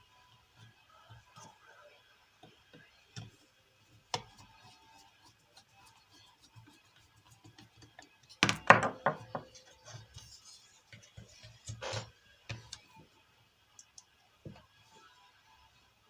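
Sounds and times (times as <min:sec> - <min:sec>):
hard objects clattering on workbench: 0:08.4 - 0:09.5.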